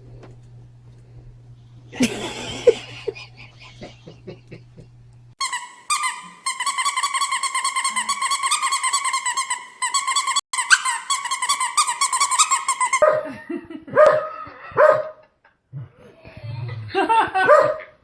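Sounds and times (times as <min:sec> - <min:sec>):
dog barking: 0:13.0 - 0:15.2, 0:17.4 - 0:18.0.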